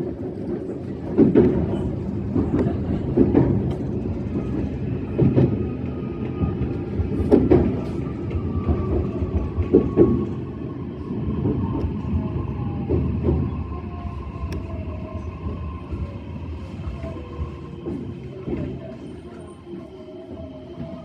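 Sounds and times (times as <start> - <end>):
train wheels clacking on rail joints: 0.0 - 10.4
train low rumble: 0.0 - 21.0.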